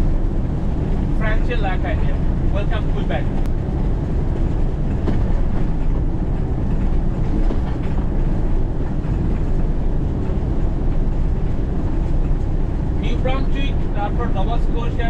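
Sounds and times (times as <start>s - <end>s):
diesel engine drone: 0.0s - 15.0s
tyre and road noise: 0.0s - 15.0s
faint rattles: 2.2s - 14.2s.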